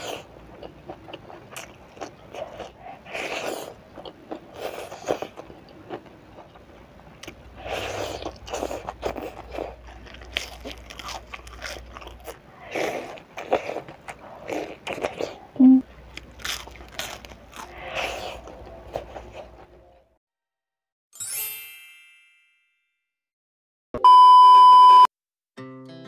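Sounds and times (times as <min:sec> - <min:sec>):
crunching bites of fried fish: 0:07.2 - 0:15.4, 0:16.0 - 0:19.5.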